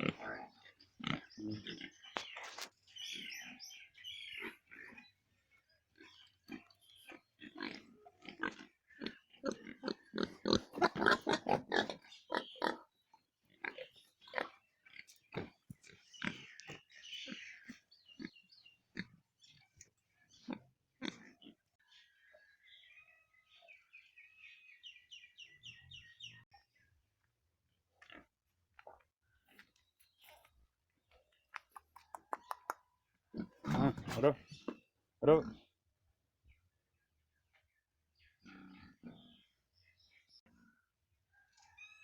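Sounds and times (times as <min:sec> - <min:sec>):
pigs grunting: 0:00.0 - 0:02.4, 0:03.0 - 0:22.1, 0:33.3 - 0:34.7, 0:38.2 - 0:39.6.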